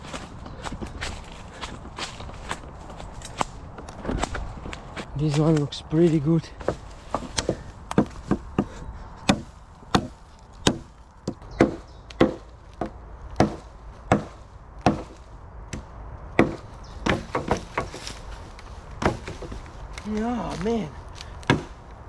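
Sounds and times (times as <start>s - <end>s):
blade chopping wood: 6.6s - 18.2s, 19.0s - 19.6s, 21.4s - 21.8s.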